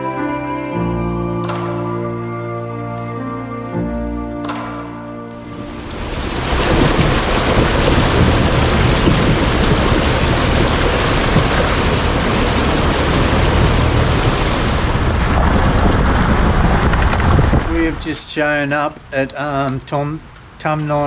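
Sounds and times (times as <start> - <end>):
music: 0.0 - 6.0
floodwater rushing: 5.5 - 18.0.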